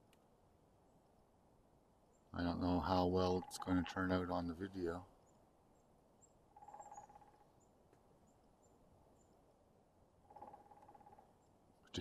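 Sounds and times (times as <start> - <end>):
faint high bird chirps: 5.1 - 9.5, 10.2 - 12.0
woodpecker drumming on hollow wood: 6.5 - 7.6, 10.2 - 11.4.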